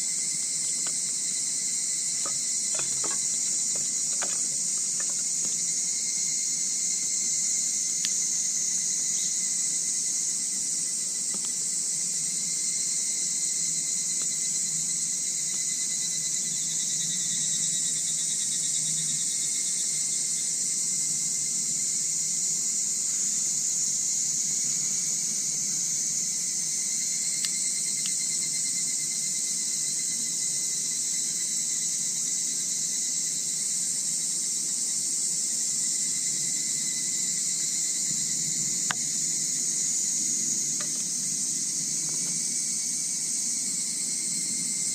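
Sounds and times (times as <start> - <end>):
crickets and night insects trilling: 0.0 - 44.9.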